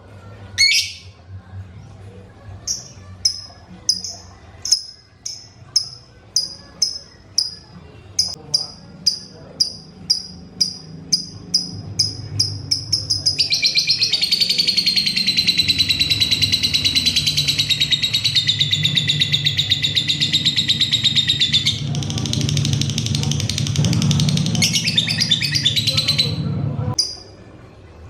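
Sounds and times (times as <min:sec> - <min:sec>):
lovebird chattering trill: 0:08.2 - 0:21.9.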